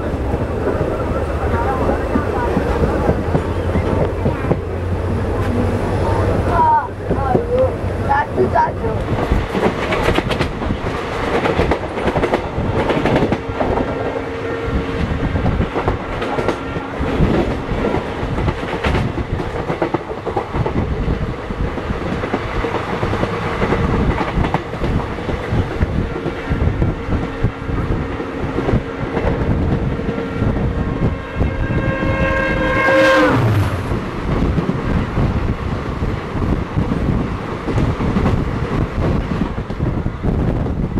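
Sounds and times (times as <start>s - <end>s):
express train running fast: 0.0s - 40.9s
train horn: 30.3s - 33.9s.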